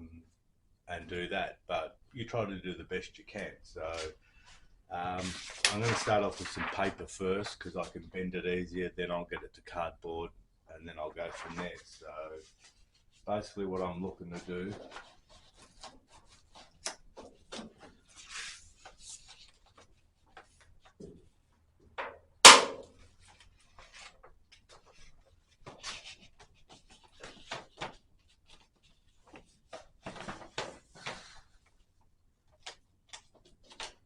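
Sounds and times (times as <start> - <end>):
paper rustling: 5.1 - 8.0, 11.2 - 21.1, 23.0 - 31.8, 32.4 - 34.0
loud sharp knock: 22.5 - 22.9.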